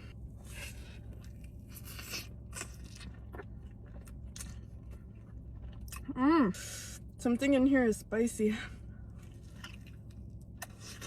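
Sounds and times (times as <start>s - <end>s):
chewing and biting food: 0.0s - 6.2s, 8.9s - 11.0s.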